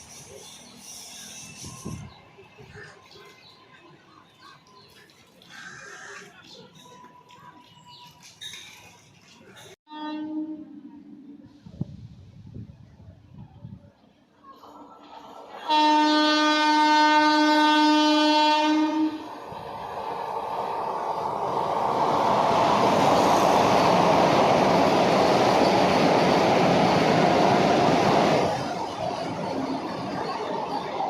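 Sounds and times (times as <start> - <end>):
train horn: 9.9 - 10.8, 15.6 - 19.3
train wheels rumbling on rail: 15.0 - 31.0.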